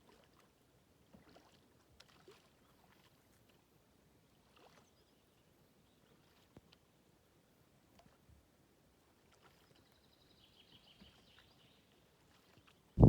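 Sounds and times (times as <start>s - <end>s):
paddle splashing water: 1.1s - 3.2s.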